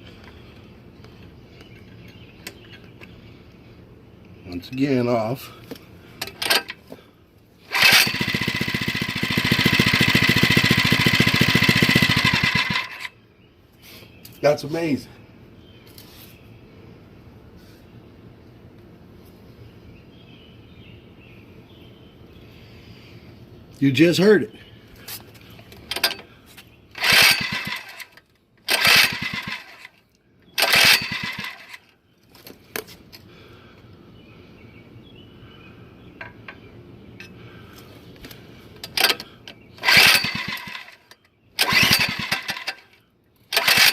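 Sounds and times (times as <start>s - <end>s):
small engine running: 7.7s - 13.2s, 27.0s - 30.0s, 30.6s - 31.9s, 39.8s - 43.9s.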